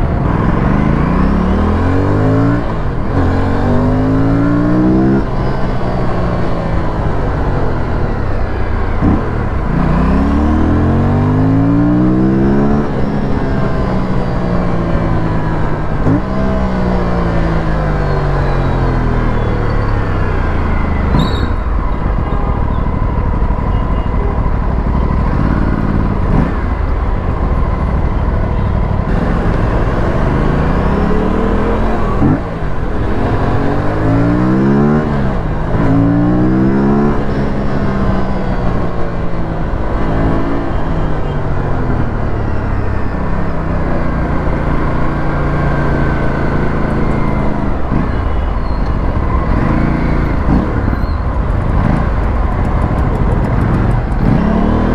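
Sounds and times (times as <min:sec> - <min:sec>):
motorcycle engine and exhaust: 0:00.0 - 0:54.9
wind and road noise: 0:00.0 - 0:54.9.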